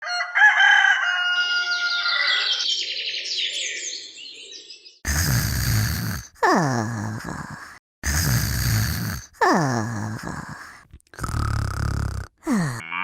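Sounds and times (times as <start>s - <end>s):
birds chirping: 1.7s - 5.1s.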